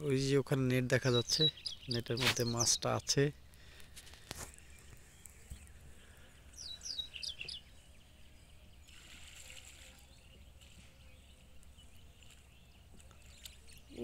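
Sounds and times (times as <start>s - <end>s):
faint riverside ambience: 0.0s - 14.0s
small bird chirping: 1.0s - 3.0s, 4.4s - 8.1s, 8.8s - 14.0s.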